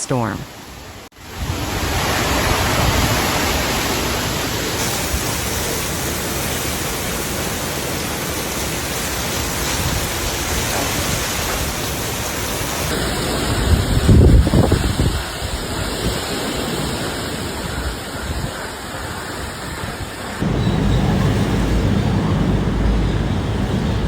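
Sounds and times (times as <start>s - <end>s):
heavy rain: 1.2s - 24.0s
strong wind: 12.9s - 24.0s.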